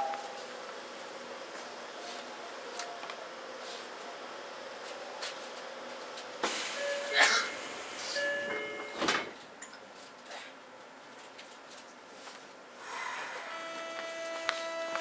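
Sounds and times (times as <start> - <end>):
train equipment humming: 0.0 - 9.6, 13.3 - 15.0
train doors opening hiss: 6.2 - 9.4.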